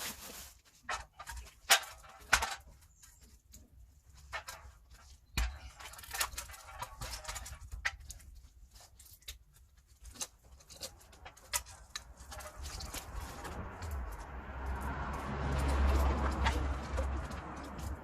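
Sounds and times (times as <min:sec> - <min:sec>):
low rumble: 0:12.4 - 0:18.0.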